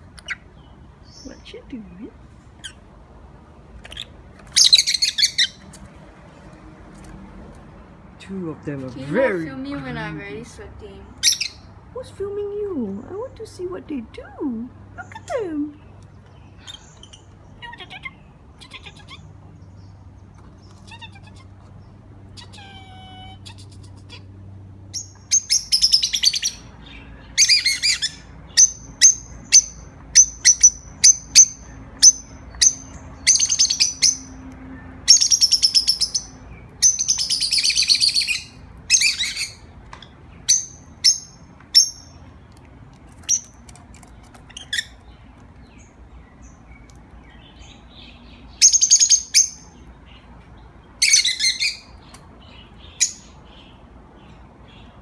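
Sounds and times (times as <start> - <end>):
parrot chirps: 0.0 - 0.5, 2.6 - 2.9, 3.8 - 5.7, 11.1 - 11.8, 16.6 - 19.3, 20.6 - 21.6, 24.9 - 39.7, 40.4 - 42.3, 44.4 - 45.1, 48.5 - 49.9, 50.9 - 52.2, 52.9 - 53.6.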